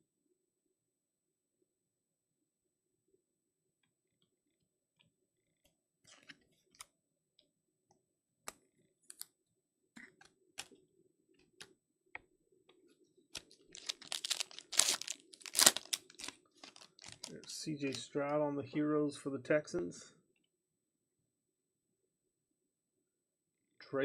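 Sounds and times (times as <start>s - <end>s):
foil wrapper tearing: 13.4s - 17.4s.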